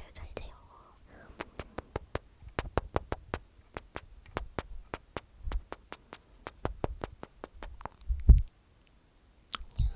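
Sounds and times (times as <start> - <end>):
wet mouth clicks: 1.2 - 8.5, 9.5 - 9.9.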